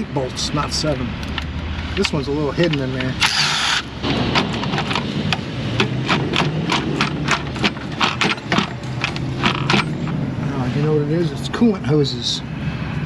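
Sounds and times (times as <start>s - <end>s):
low shop hum: 0.0s - 13.0s
hand ratchet clicking: 1.2s - 10.0s.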